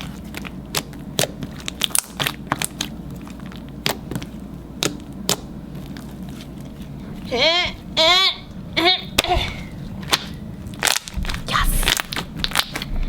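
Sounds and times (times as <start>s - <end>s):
slime clicking and popping: 0.3s - 5.5s.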